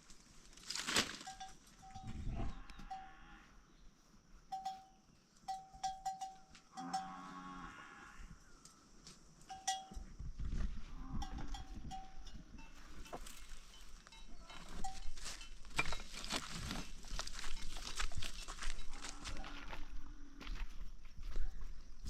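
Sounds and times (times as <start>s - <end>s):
livestock bell clinking: 1.2s - 3.2s, 4.5s - 7.5s, 9.4s - 10.2s, 11.0s - 19.6s.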